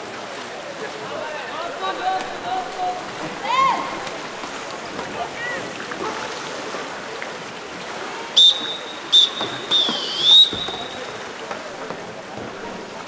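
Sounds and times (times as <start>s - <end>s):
indoor pool hall hubbub: 0.0s - 13.0s
referee's whistle blasts: 8.4s - 11.2s.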